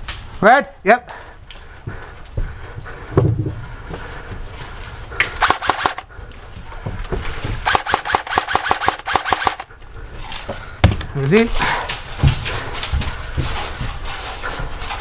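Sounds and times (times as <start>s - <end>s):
airsoft rifle firing: 5.4s - 6.1s, 7.6s - 9.7s.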